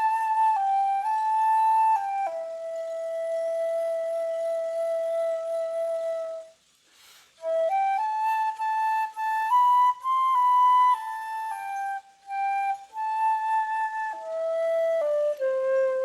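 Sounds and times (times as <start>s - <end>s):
solo flute melody: 0.0s - 16.0s
flute player breathing: 6.6s - 7.6s.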